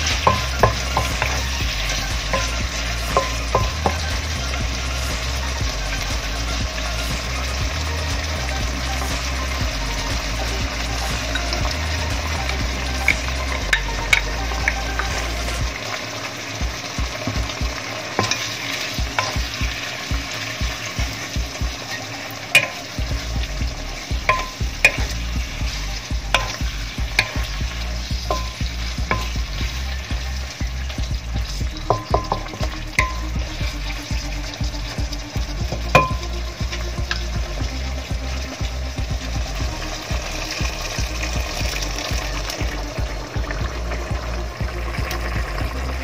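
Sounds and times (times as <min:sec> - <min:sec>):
food sizzling in a wok: 0:00.0 - 0:46.0
spatula tapping and scraping pan: 0:00.1 - 0:01.4, 0:02.3 - 0:04.0, 0:18.2 - 0:18.5, 0:19.1 - 0:19.6, 0:22.6 - 0:22.9, 0:24.2 - 0:25.2, 0:26.4 - 0:27.6, 0:28.3 - 0:29.6, 0:31.8 - 0:33.3.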